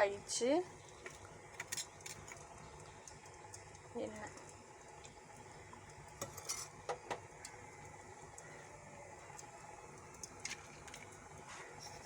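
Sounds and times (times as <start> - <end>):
low steady hum: 0.0 - 12.0
utensil clinking on pan: 6.2 - 6.8.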